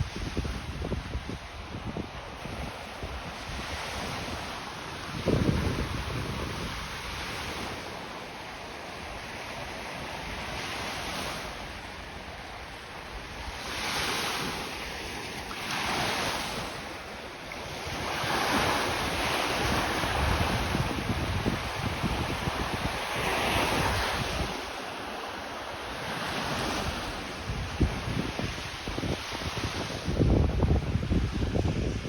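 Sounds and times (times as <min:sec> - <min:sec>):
wind rumbling on microphone: 0:00.0 - 0:07.9, 0:17.6 - 0:24.8, 0:26.0 - 0:32.0
waves breaking on beach: 0:00.0 - 0:32.0.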